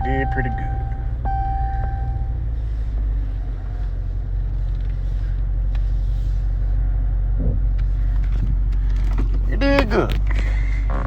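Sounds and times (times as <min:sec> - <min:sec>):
steady tone: 0:00.0 - 0:02.5
car cabin rumble: 0:00.0 - 0:11.0.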